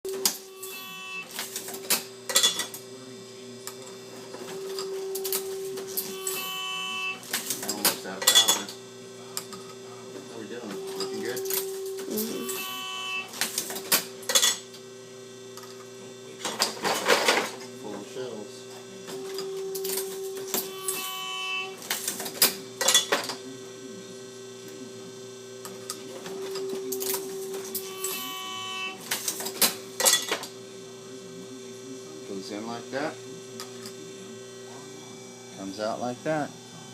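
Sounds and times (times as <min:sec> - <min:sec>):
motor hum: 0:03.7 - 0:16.3.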